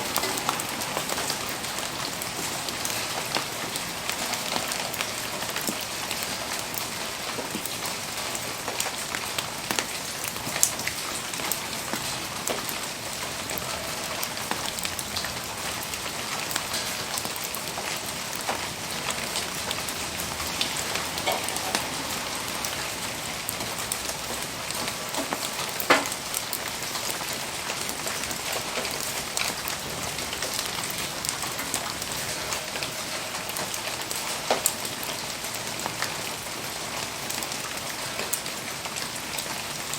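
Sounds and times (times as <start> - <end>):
bonfire crackling: 0.0 - 39.9
rain hissing: 0.0 - 39.9
raindrops ticking: 0.0 - 39.9.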